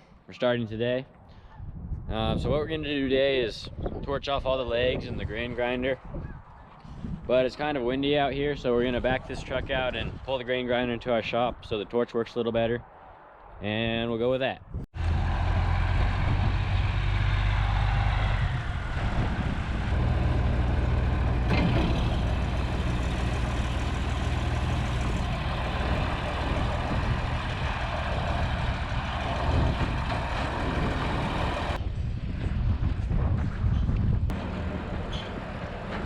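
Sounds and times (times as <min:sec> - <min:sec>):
truck engine low rumble: 0:15.0 - 0:36.0.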